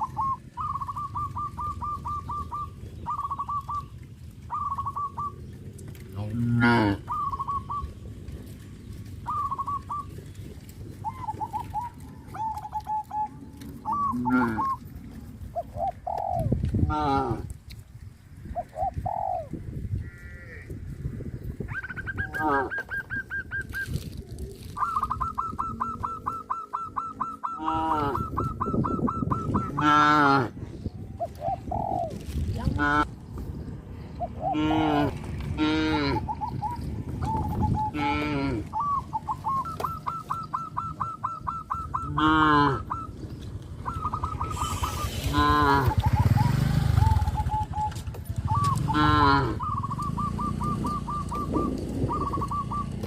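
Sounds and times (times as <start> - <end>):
rapid repeated bird chirps: 0.0 - 5.9, 7.0 - 14.9, 24.7 - 29.8, 36.2 - 38.0, 38.7 - 42.2, 42.8 - 49.0, 49.6 - 53.0
birds calling: 0.0 - 53.0
cattle mooing: 6.2 - 7.1, 14.0 - 14.8, 34.5 - 36.3, 37.9 - 38.7, 42.0 - 42.9, 45.2 - 46.1, 48.8 - 49.6.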